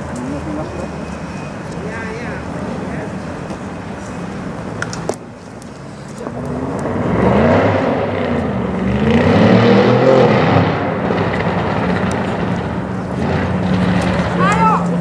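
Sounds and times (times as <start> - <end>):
car engine revving: 6.4 - 15.0.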